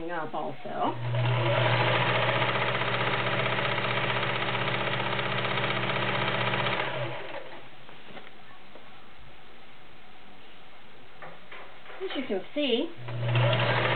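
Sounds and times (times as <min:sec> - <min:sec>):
sewing machine stitching: 0:01.0 - 0:07.6, 0:13.0 - 0:13.9.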